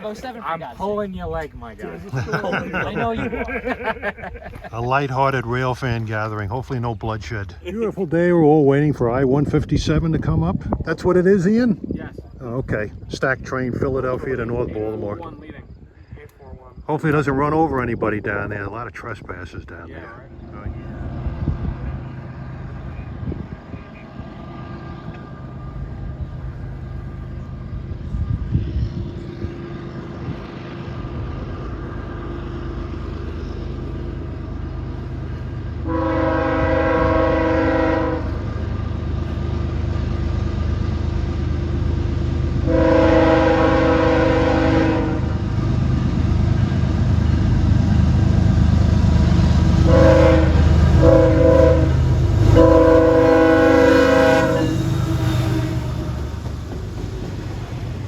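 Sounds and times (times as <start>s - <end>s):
diesel locomotive rumble: 0.0s - 58.0s
train air horn blasts: 35.8s - 38.8s, 42.6s - 45.4s, 49.6s - 56.4s.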